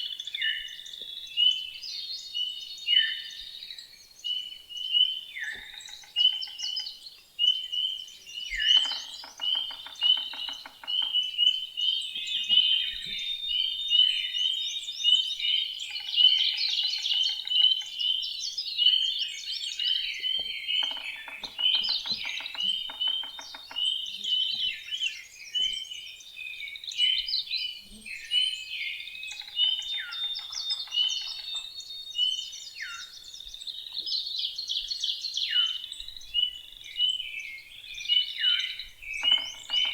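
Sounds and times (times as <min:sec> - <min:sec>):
songbirds chorus: 0:00.0 - 0:39.9.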